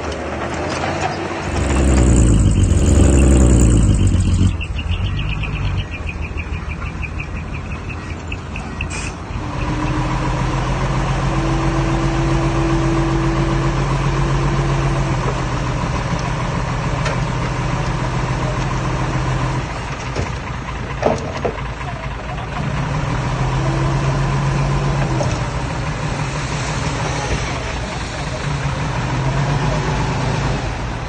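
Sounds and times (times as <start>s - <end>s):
diesel engine running: 1.4s - 7.4s
rapid regular ticking: 1.5s - 5.3s.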